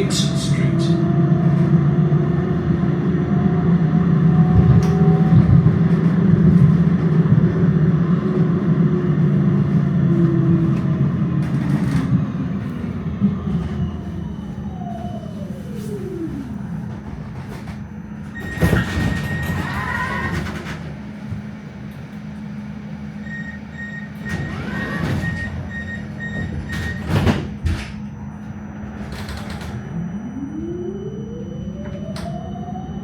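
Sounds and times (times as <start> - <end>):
tram rumble and motor hum: 0.0 - 33.0
whine gliding down: 29.8 - 33.0.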